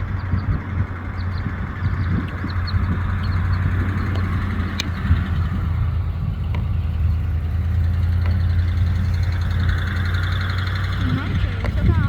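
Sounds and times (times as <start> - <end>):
car engine idling: 0.0 - 12.0
faint clicks: 4.0 - 5.0.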